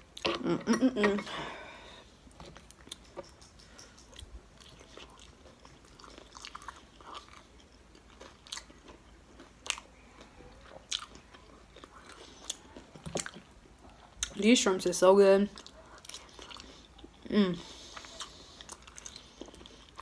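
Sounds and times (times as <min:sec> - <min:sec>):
chewing with light crunching: 0:00.0 - 0:14.7, 0:15.4 - 0:20.0
wet mouth clicks: 0:02.6 - 0:04.8.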